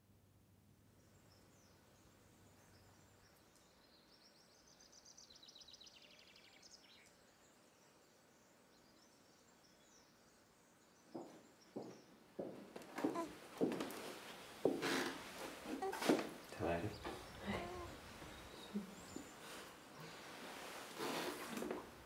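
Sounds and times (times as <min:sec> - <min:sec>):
soft knocks: 0:11.2 - 0:14.0
faint bird trill: 0:16.9 - 0:19.4.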